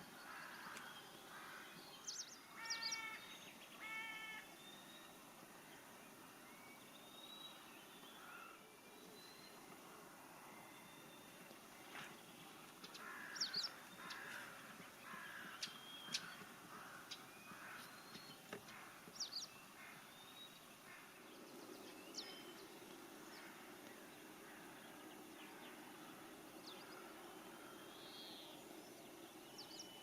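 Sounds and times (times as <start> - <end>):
birds chirping: 10.6 - 30.0.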